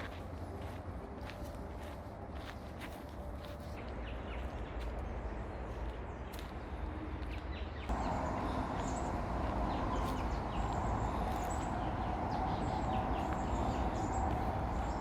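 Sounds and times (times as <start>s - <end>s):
constant low rumble: 0.0s - 15.0s
small birds chirping: 0.0s - 15.0s
steady hum: 7.9s - 15.0s.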